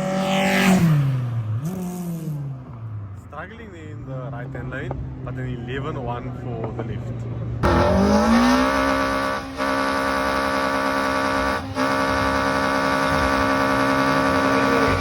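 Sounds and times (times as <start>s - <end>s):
racing car engine revving: 7.6s - 15.0s.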